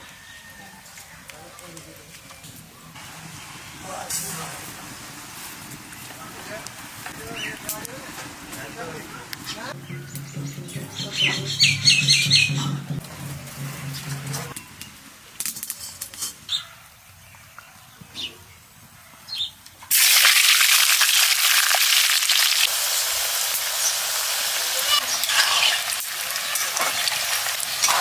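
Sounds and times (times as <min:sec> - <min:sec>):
bird chirps: 0:09.8 - 0:13.0
food sizzling in hot oil: 0:19.9 - 0:28.0.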